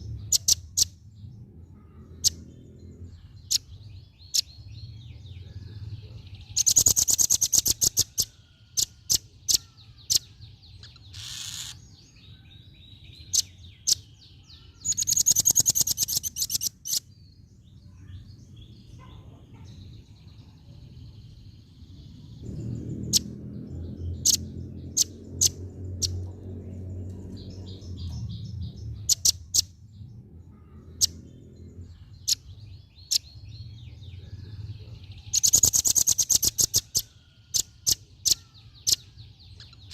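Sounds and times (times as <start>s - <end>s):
bird chattering trills: 0.0s - 1.0s, 6.5s - 11.9s, 13.2s - 17.1s, 27.2s - 29.8s, 30.5s - 39.9s
sharp bird chirps: 0.0s - 1.0s, 2.0s - 18.2s, 21.0s - 39.9s.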